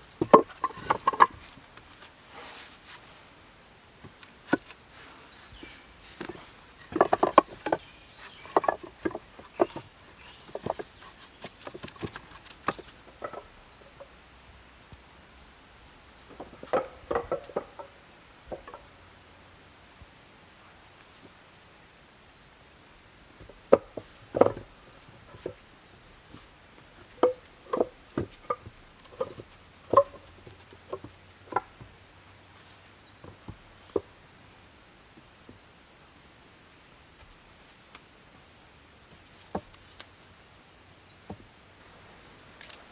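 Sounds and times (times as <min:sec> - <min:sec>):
knocks and cracks of wood: 0:00.1 - 0:02.1, 0:05.6 - 0:13.6, 0:16.3 - 0:17.9, 0:23.4 - 0:32.0
faint bird chirps: 0:04.7 - 0:14.2.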